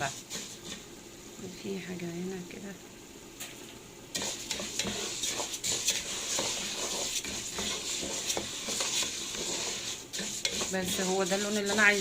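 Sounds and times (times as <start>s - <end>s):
spoon scraping a pot: 0.0s - 0.9s, 4.1s - 12.0s
pasta sizzling in a pot: 0.0s - 12.0s.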